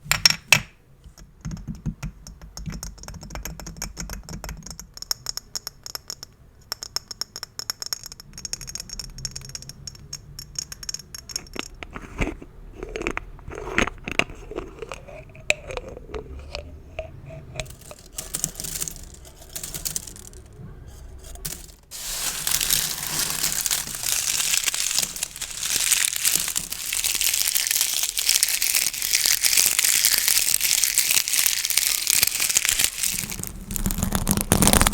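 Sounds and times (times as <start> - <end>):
gift bows crinkling: 17.6 - 20.6, 21.2 - 34.9
gift bows rustling: 17.6 - 34.9.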